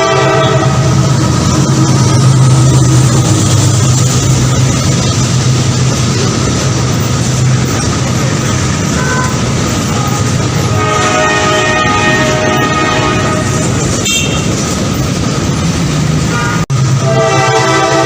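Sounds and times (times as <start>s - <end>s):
multi-tone train horn: 0.0s - 1.2s, 9.0s - 14.6s, 16.3s - 18.0s
train rumbling: 0.0s - 18.0s.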